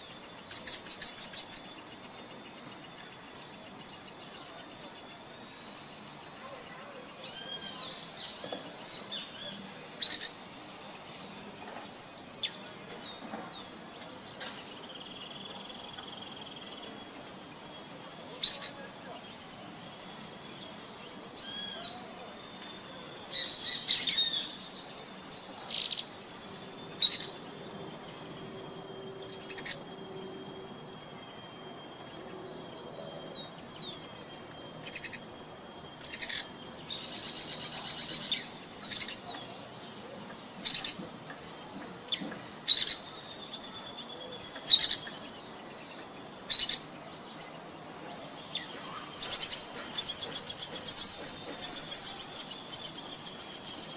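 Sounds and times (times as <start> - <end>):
faint high hum: 0.0 - 53.9
songbirds chirping and whistling: 0.0 - 53.9
buzzy bird trill: 42.5 - 53.9.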